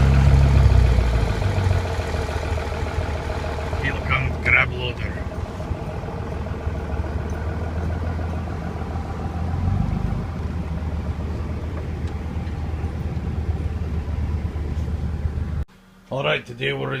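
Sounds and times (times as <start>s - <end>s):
heavy diesel engine running: 0.0s - 15.6s.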